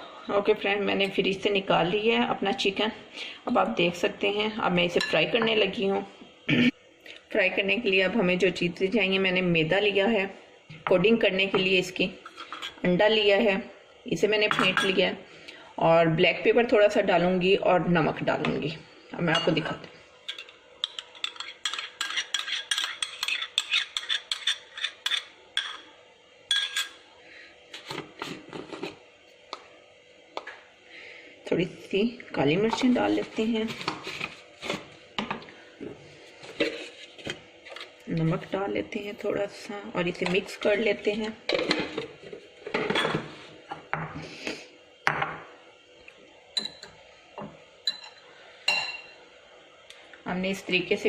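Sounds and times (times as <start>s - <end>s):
metal utensil clinking against bowl: 20.3s - 25.8s, 26.5s - 27.0s.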